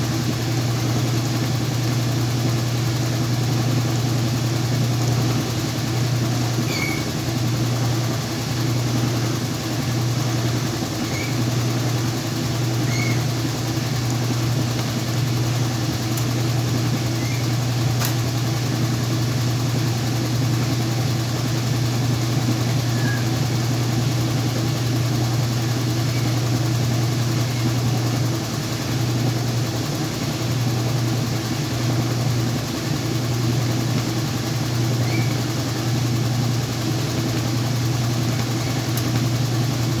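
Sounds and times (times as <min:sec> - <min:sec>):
washing machine spinning: 0:00.0 - 0:40.0.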